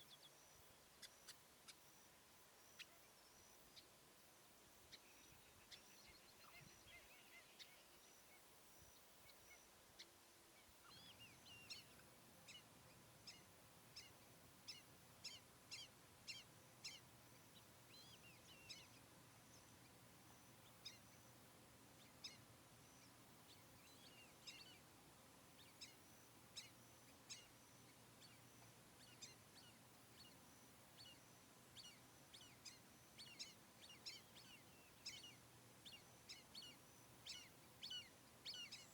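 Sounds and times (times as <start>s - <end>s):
faint bird chirps: 0.0s - 38.9s.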